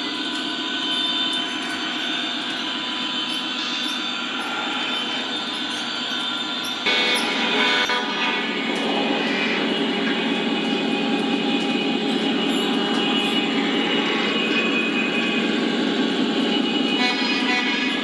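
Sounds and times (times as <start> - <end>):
wheels rolling on rail: 0.0 - 18.0
diesel engine drone: 4.3 - 18.0.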